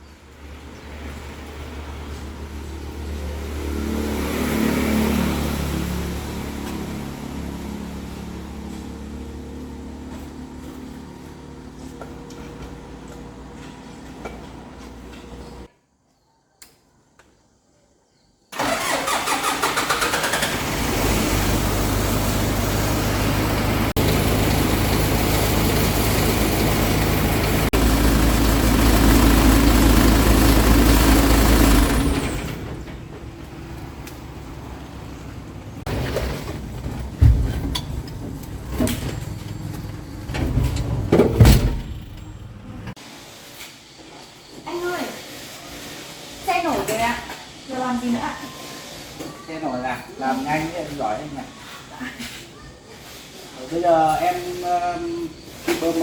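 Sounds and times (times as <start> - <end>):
low engine hum: 0.2 - 15.7, 20.3 - 43.0
truck engine cranking and starting: 2.0 - 15.7, 18.5 - 43.0.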